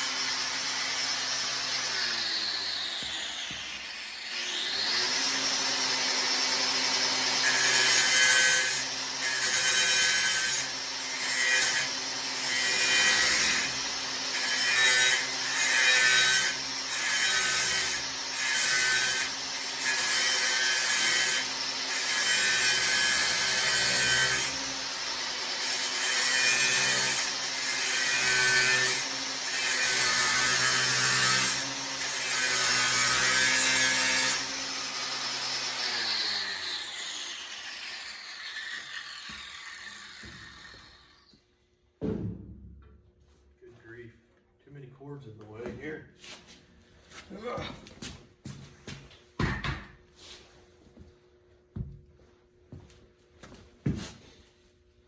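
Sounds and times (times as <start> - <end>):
power tool cutting metal: 0.0 - 41.4.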